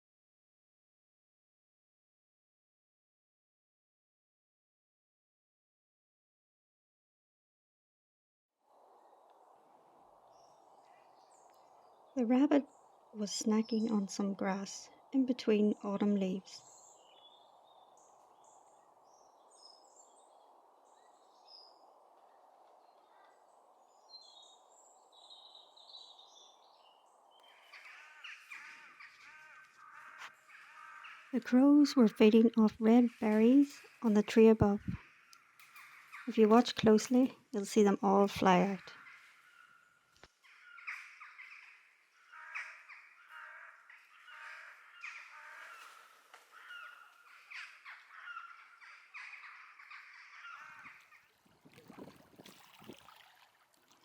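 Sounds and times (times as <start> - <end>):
small birds chirping: 10.3 - 52.8
crows cawing: 27.4 - 31.4, 35.0 - 36.3, 38.9 - 51.4.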